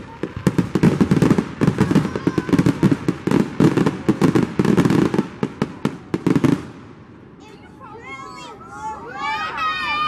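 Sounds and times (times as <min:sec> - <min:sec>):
fireworks bursting: 0:00.0 - 0:07.3.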